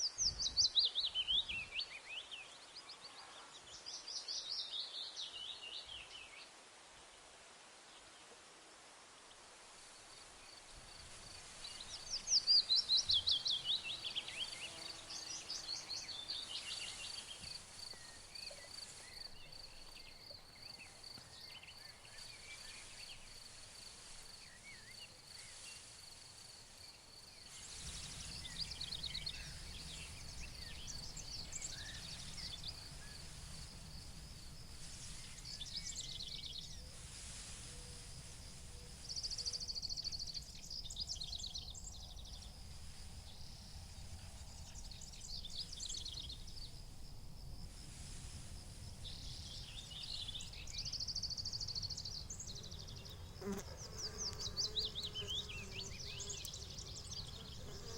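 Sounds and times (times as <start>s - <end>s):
wind through grass: 0.0s - 57.9s
insect trill: 10.1s - 57.9s
songbirds singing trills: 10.5s - 26.0s, 26.8s - 46.8s, 49.0s - 57.9s.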